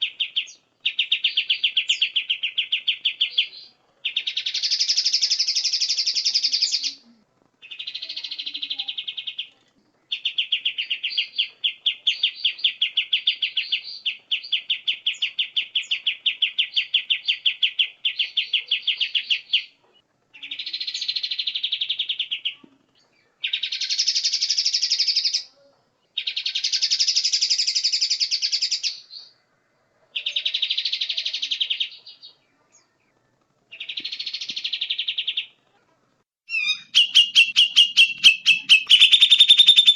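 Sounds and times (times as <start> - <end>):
songbird chattering trills: 0.0 - 7.0, 36.5 - 39.9.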